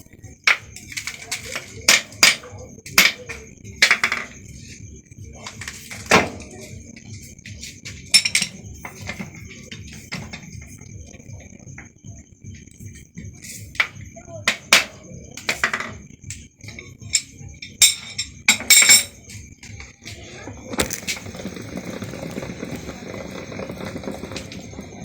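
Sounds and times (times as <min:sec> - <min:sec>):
metal tools clinking: 0:08.1 - 0:09.3, 0:16.7 - 0:19.2
rushing machine noise: 0:20.6 - 0:25.0.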